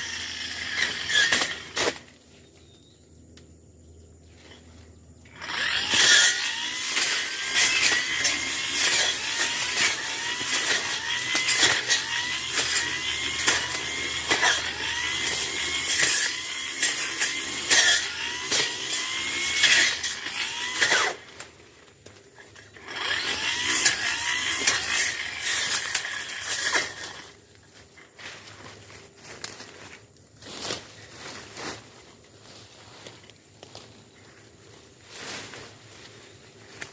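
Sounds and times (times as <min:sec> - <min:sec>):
brush cutter engine revving: 0:00.0 - 0:02.1, 0:05.3 - 0:21.6, 0:22.4 - 0:27.4.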